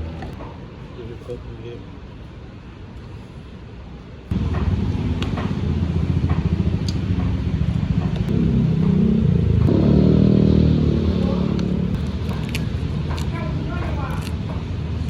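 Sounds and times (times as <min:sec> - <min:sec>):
vehicle engine running: 0:04.3 - 0:15.0.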